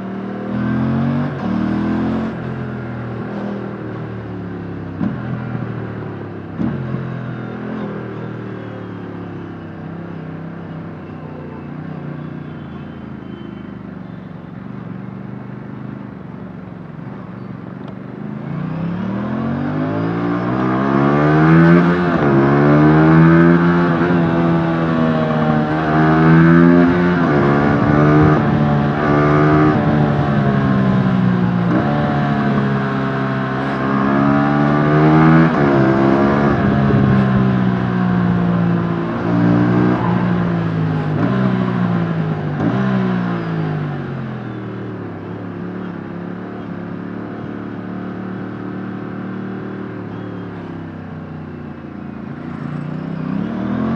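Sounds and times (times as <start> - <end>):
motorcycle engine accelerating: 17.9 - 53.9.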